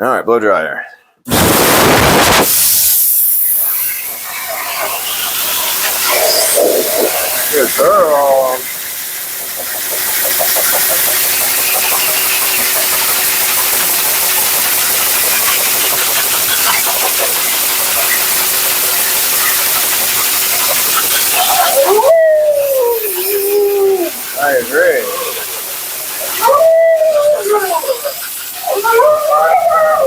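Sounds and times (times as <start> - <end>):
blow dryer blowing air: 1.3 - 30.0
dog howling: 6.0 - 8.6, 21.3 - 30.0.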